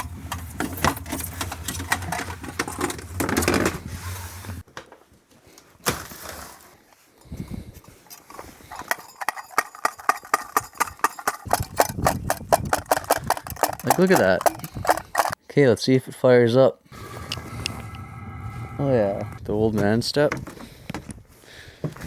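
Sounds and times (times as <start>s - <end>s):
diesel heater humming and crackling: 0.0s - 4.6s, 16.9s - 19.6s
fast sharp clicks: 9.0s - 15.4s.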